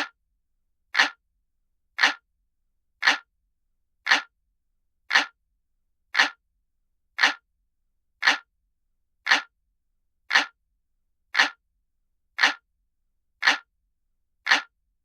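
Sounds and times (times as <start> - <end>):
clock ticking: 1.0 - 1.2, 2.0 - 2.2, 3.0 - 3.3, 4.1 - 4.3, 5.1 - 5.4, 6.2 - 6.4, 7.2 - 7.4, 8.2 - 8.5, 9.3 - 9.5, 10.3 - 10.6, 11.4 - 11.6, 12.4 - 12.6, 13.4 - 13.7, 14.4 - 14.7.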